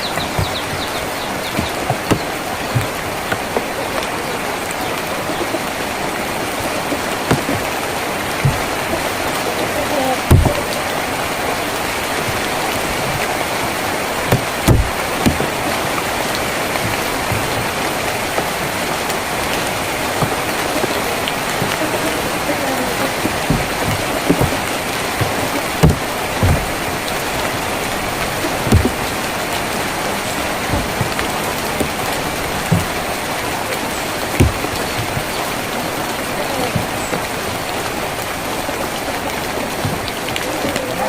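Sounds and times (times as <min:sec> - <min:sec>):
heavy raindrops knocking: 0:00.0 - 0:41.0
rain drumming on a tin roof: 0:00.0 - 0:41.0.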